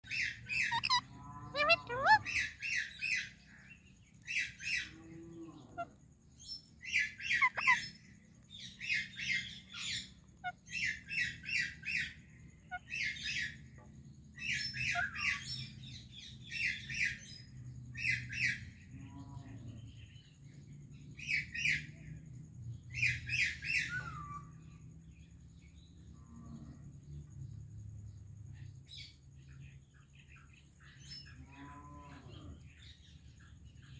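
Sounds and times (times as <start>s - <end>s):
parakeets chattering: 0.1s - 3.4s, 6.9s - 8.0s.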